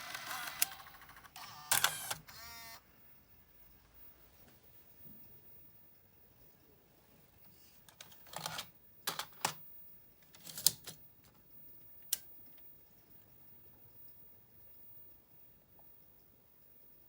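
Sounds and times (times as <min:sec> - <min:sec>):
video recorder mechanism clicking: 0:00.0 - 0:02.8.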